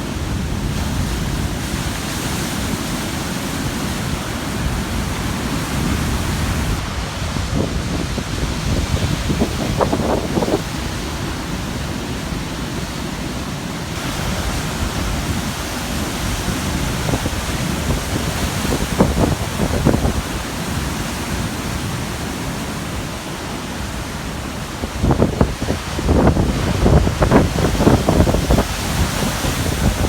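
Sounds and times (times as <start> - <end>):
ocean waves crashing on rocks: 0.0 - 30.0
wind buffeting microphone: 3.0 - 12.0, 14.0 - 22.4, 24.1 - 30.0.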